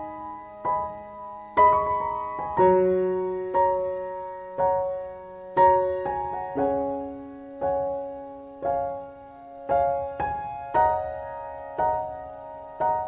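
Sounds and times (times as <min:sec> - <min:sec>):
slow gentle piano melody: 0:00.0 - 0:13.0.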